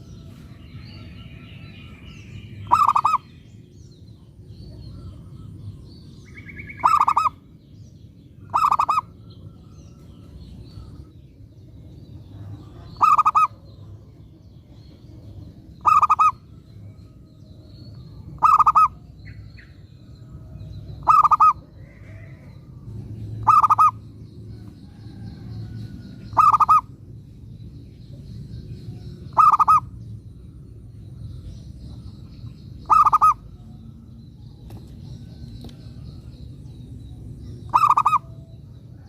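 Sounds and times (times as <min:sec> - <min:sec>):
low background rumble: 0:00.0 - 0:39.0
dove cooing: 0:02.6 - 0:03.2, 0:06.8 - 0:07.4, 0:08.5 - 0:09.1, 0:12.6 - 0:13.6, 0:15.8 - 0:16.4, 0:18.4 - 0:19.0, 0:21.0 - 0:22.4, 0:23.3 - 0:24.0, 0:26.3 - 0:26.9, 0:29.4 - 0:29.9, 0:32.8 - 0:33.5, 0:37.6 - 0:38.3.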